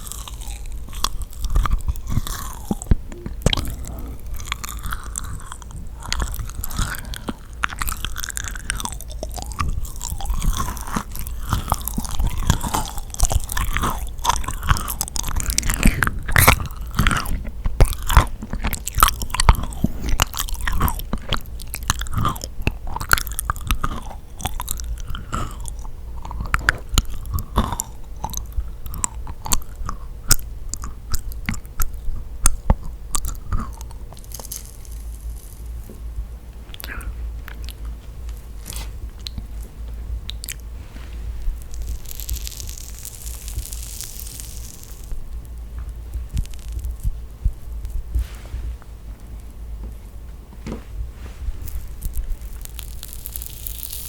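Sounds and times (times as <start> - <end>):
sticky wet mouth sounds: 0.0 - 35.7, 41.5 - 48.2
chewing and biting cookie: 0.0 - 40.7, 41.5 - 48.3, 51.7 - 54.0.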